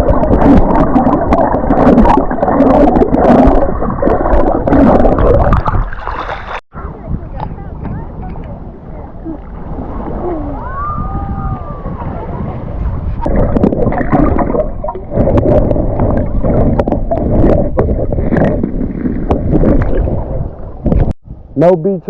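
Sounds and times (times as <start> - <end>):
water splashing around wading: 0.0 - 6.6, 13.0 - 21.1
wind on microphone: 6.7 - 21.6.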